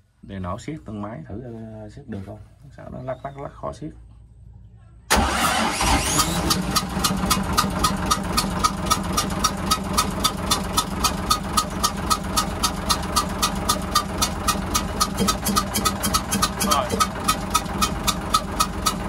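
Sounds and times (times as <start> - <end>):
diesel engine starting and idling: 5.1 - 19.0
regular ticking puff: 5.1 - 19.0.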